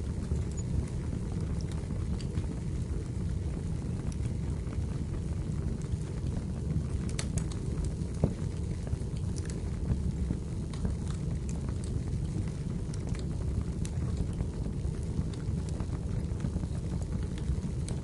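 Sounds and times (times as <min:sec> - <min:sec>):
fire flames rumbling: 0:00.0 - 0:18.0
firewood crackling and popping: 0:00.0 - 0:18.0.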